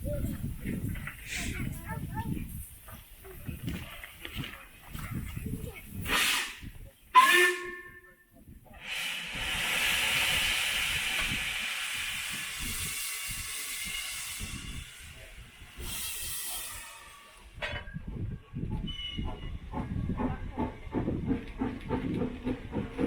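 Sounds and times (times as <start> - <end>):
steam locomotive hissing steam: 1.0 - 3.0, 5.9 - 7.9, 8.8 - 17.6.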